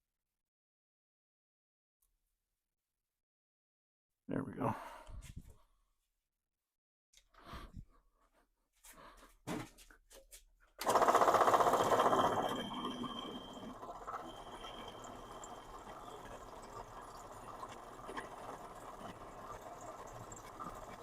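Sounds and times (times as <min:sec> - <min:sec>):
power tool running: 0:10.8 - 0:21.0.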